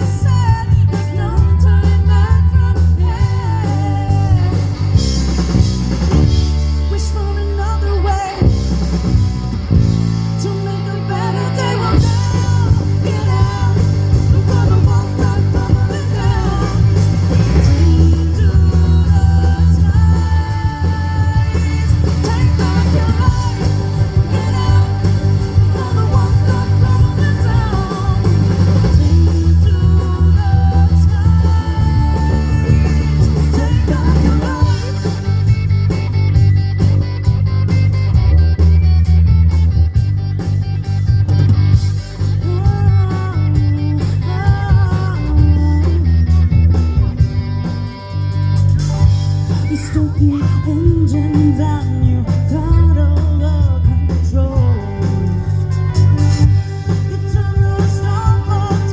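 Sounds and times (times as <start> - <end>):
lead vocal singing: 0.0 - 5.7, 10.4 - 35.8, 42.3 - 46.4, 49.5 - 58.9
live rock band playing: 0.0 - 58.9.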